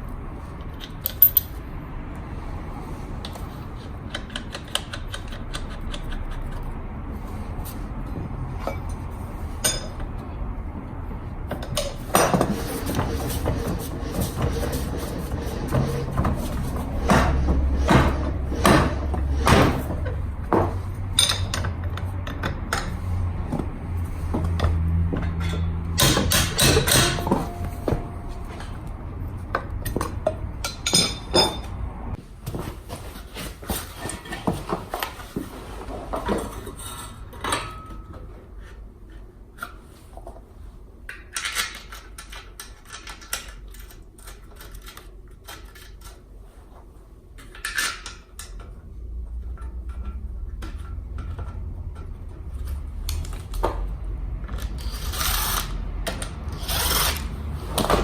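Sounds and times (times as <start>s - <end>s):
low hum: 12.9s - 29.6s
metal tools clinking: 21.1s - 22.5s, 25.2s - 28.8s, 30.6s - 31.8s.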